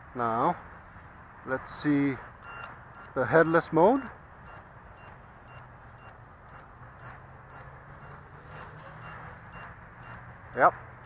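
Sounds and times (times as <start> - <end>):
short high-pitched beeps: 2.4 - 10.6
quadcopter motors humming: 3.5 - 10.7.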